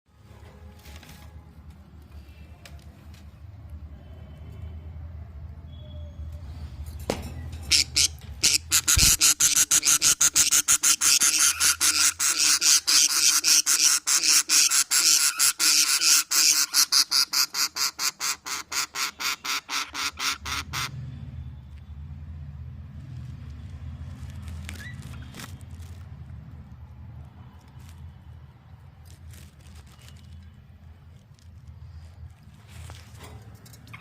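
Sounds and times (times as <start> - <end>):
budgerigar chicks chirping: 7.7 - 20.9.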